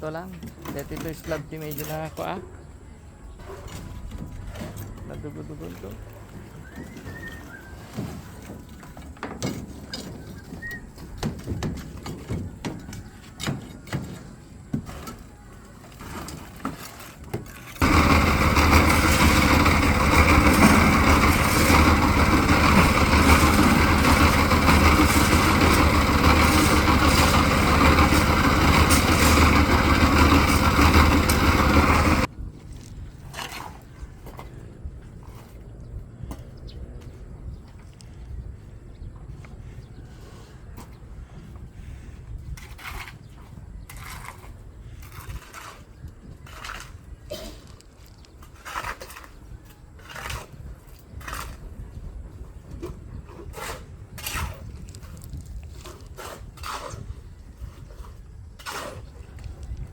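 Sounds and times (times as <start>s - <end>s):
small engine humming: 17.8s - 32.3s.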